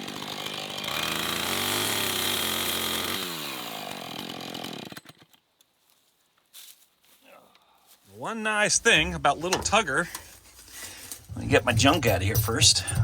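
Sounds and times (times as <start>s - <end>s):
chainsaw revving: 0.0s - 5.3s.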